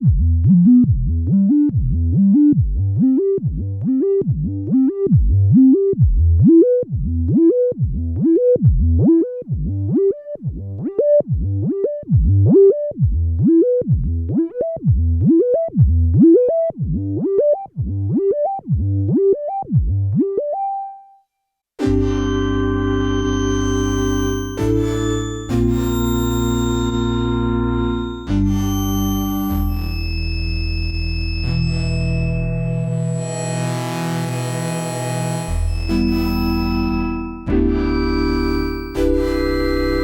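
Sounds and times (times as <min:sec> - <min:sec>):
sustained synth chord: 0:21.8 - 0:40.0
synthesizer short rising notes: 0:21.8 - 0:40.0.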